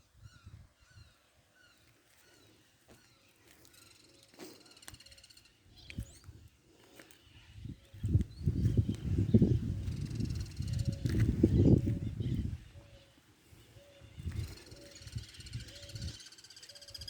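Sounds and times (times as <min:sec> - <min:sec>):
birds chirping: 0:00.0 - 0:17.0
bird trilling: 0:13.9 - 0:17.0.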